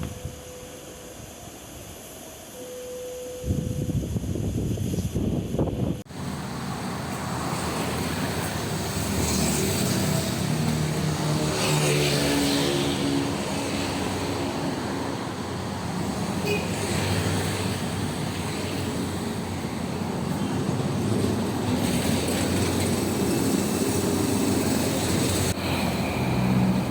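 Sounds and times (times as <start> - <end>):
traffic rumble: 5.8 - 26.9
engine passing by: 6.1 - 26.9.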